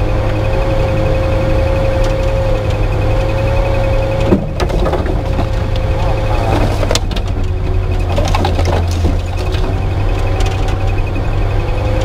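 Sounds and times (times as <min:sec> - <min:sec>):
engine drone with whine: 0:00.0 - 0:12.0
branches scraping vehicle body: 0:04.1 - 0:11.0.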